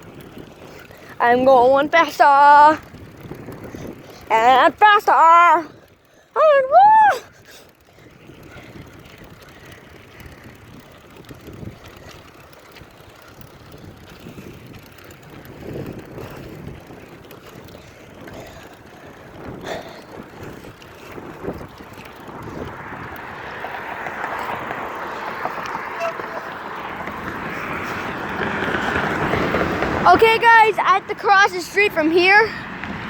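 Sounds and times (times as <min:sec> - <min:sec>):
wind on microphone: 0:02.6 - 0:04.3, 0:12.9 - 0:30.4
bicycle knocks and rattles: 0:07.8 - 0:30.2.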